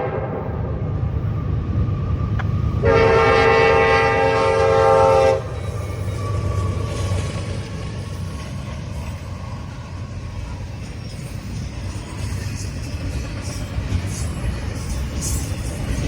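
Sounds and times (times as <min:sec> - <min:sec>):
locomotive air horn blast: 0:00.0 - 0:00.4, 0:02.8 - 0:05.5
train rumbling past: 0:00.0 - 0:16.0.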